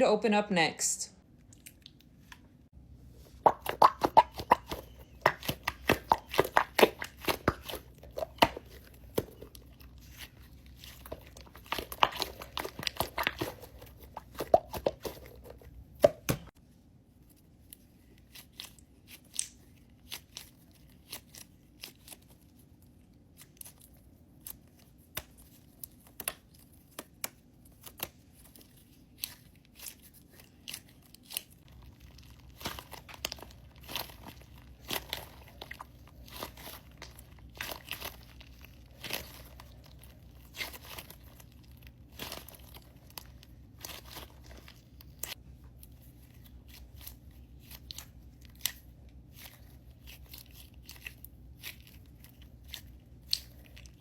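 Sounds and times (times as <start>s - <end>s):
crinkling and tearing: 17.2s - 54.0s.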